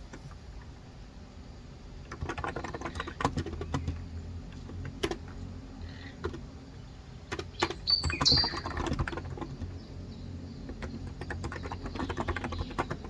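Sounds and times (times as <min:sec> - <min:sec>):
soft keyboard typing: 0:02.0 - 0:09.9, 0:10.6 - 0:13.0.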